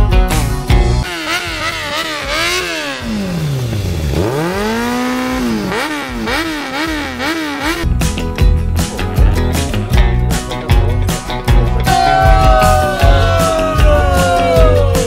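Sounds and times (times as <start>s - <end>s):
motorcycle engine revving: 0.8s - 12.0s.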